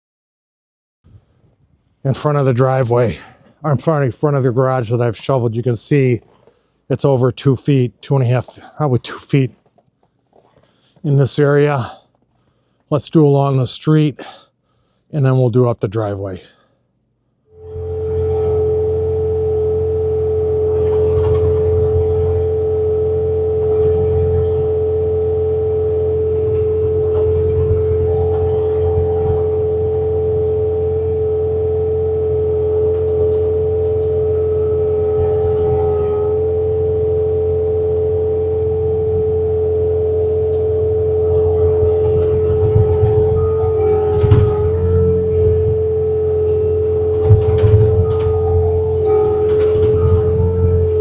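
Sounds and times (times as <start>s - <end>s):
snowblower high whine: 2.0s - 9.5s, 17.5s - 51.0s
diesel engine running: 17.6s - 51.0s.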